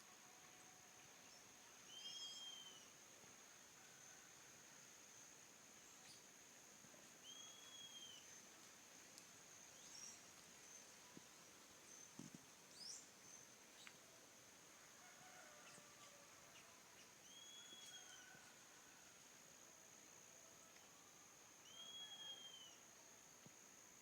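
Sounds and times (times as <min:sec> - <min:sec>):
faint birdsong: 0:00.0 - 0:03.0, 0:07.2 - 0:08.6, 0:15.1 - 0:18.4, 0:20.6 - 0:22.9.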